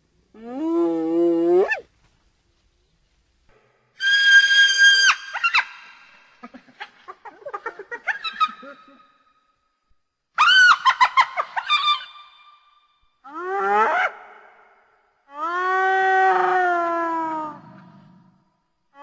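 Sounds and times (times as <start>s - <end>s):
hyena laughing: 6.3s - 9.2s.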